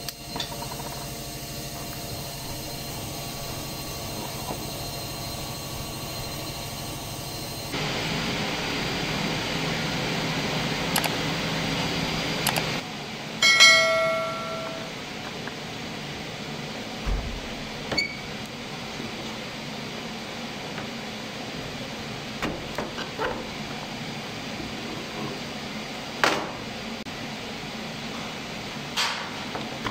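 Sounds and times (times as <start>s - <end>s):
ringing metallic strike: 13.4s - 15.1s.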